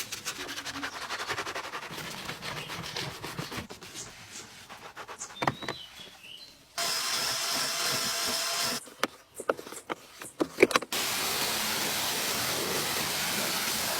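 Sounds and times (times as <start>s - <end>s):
water spray hissing: 10.9s - 13.9s.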